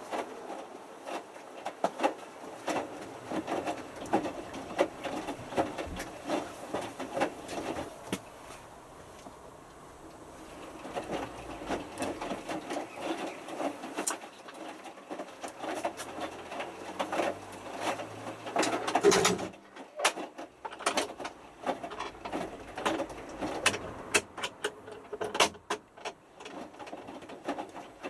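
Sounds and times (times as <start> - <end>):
washing machine motor humming: 2.4 - 14.0
clicks and knocks from drum: 10.5 - 28.0.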